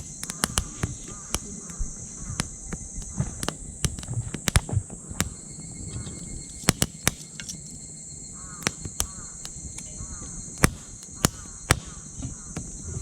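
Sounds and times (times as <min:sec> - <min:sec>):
high insect drone: 0:00.0 - 0:13.0
wood fire crackling: 0:00.0 - 0:13.0.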